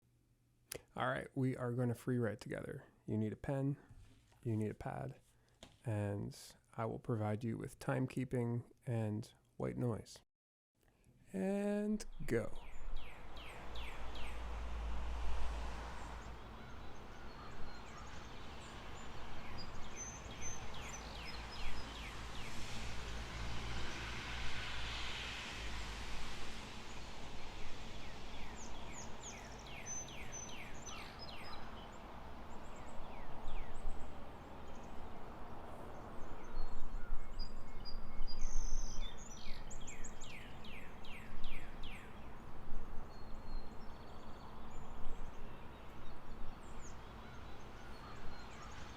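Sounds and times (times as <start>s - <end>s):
birds rapid chirps: 12.1s - 14.9s, 15.5s - 24.0s, 27.4s - 48.9s.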